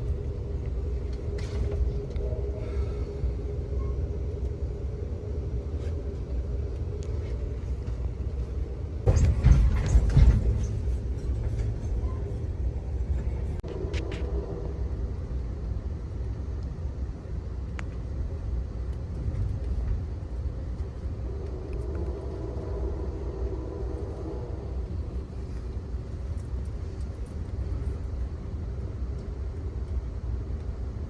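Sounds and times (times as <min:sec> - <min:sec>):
train car rumbling on track: 0:00.0 - 0:31.0
clattering and knocking: 0:09.0 - 0:13.6.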